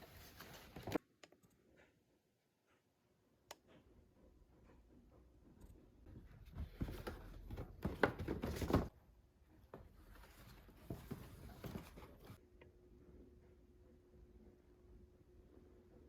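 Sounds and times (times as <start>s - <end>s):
rustling and clattering: 6.1s - 8.9s, 9.6s - 12.4s.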